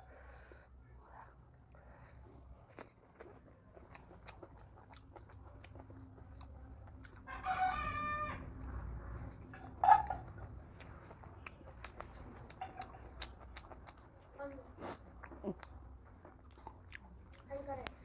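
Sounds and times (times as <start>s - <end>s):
rooster crowing: 7.3s - 8.7s.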